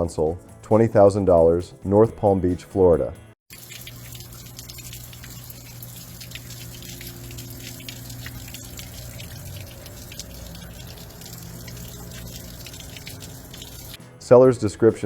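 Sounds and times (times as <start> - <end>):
water splashing and dripping: 3.5 - 14.0.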